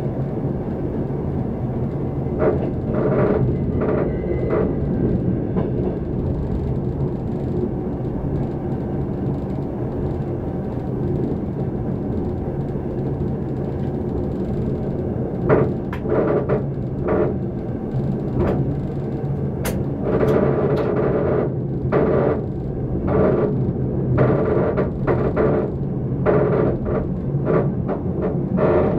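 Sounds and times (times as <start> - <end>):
train rumble with low hum: 0.0 - 28.9
short knocks and clacks: 19.6 - 21.0.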